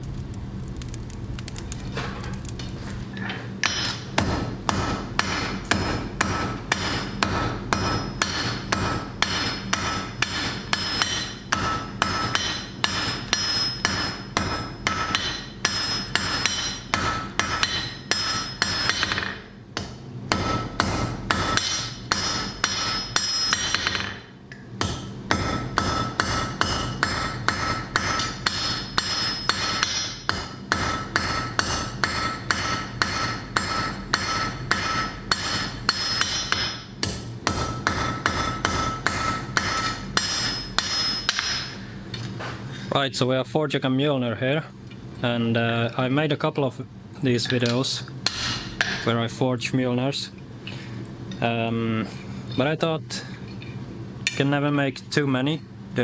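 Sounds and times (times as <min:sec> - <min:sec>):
low hum: 0:00.0 - 0:05.1
hammer striking metal on anvil: 0:03.6 - 0:41.8, 0:47.6 - 0:49.1.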